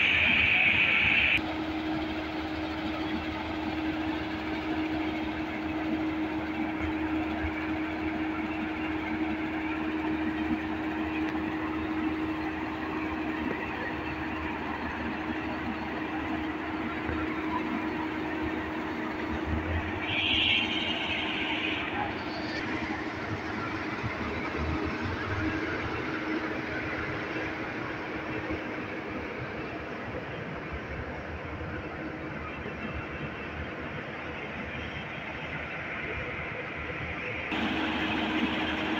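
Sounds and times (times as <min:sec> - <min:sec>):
tractor engine running: 0:00.0 - 0:38.9
loud high-pitched tone: 0:11.5 - 0:25.4.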